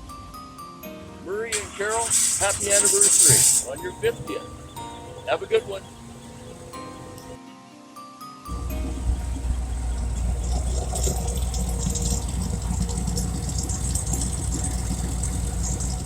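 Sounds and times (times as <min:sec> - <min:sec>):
car engines low rumble: 0:08.5 - 0:16.0.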